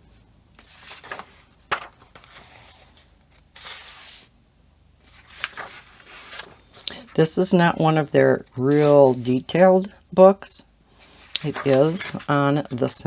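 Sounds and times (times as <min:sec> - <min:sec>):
paper page rustling: 0:00.6 - 0:04.3, 0:05.0 - 0:07.8, 0:08.5 - 0:09.3, 0:11.0 - 0:13.0.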